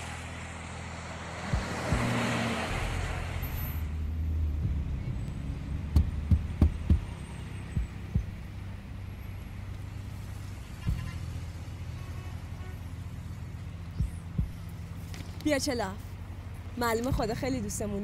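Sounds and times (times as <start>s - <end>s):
car driving up: 0.0s - 11.9s
low engine hum: 0.0s - 18.0s.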